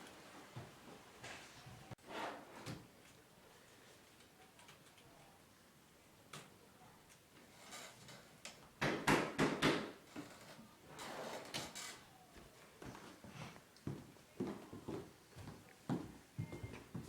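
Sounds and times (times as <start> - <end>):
loud knocks on a door: 8.8 - 10.0.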